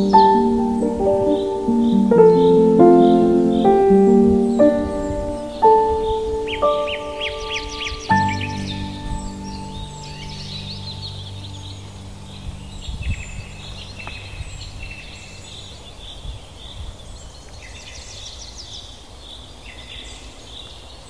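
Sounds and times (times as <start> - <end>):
low steady tones: 0.0 - 14.8
wild birds chirping and singing: 0.0 - 21.0.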